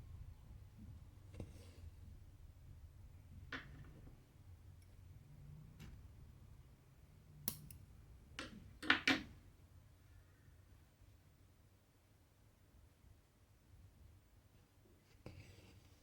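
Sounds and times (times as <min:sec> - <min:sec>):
needle and thread clicks: 0:07.4 - 0:07.8.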